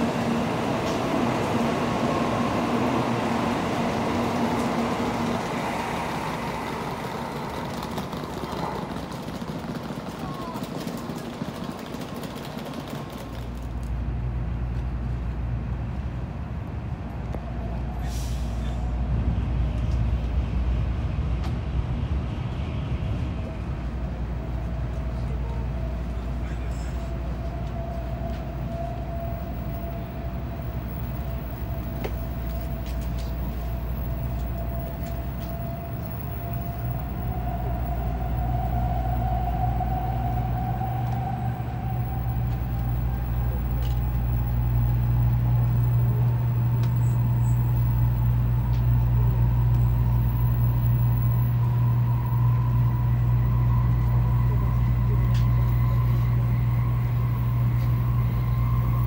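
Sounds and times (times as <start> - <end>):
train running rumble: 0.0 - 59.0
train motor whine rising: 24.3 - 59.0.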